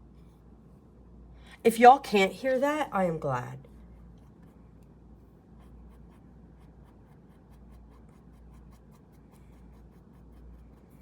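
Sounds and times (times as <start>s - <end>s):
drawing tool scratching on paper: 5.4s - 11.0s.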